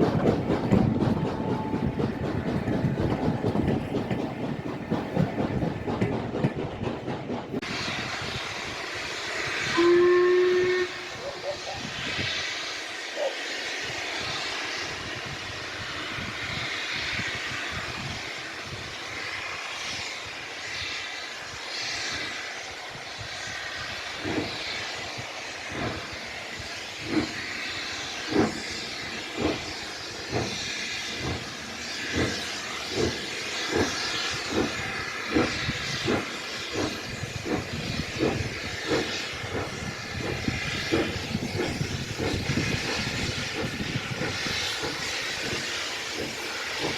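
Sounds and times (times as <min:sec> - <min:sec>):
steam hissing: 0:00.0 - 0:46.9
steam locomotive exhaust beats: 0:00.0 - 0:46.9.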